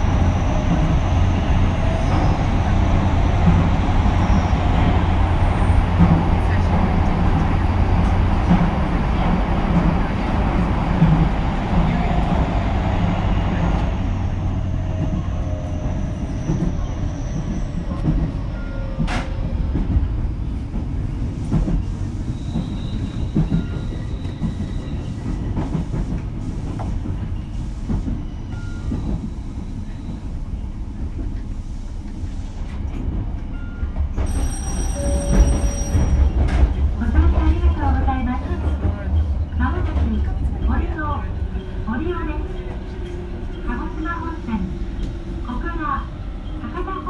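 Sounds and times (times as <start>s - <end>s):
train wheels rumbling on rail: 0.0s - 47.0s.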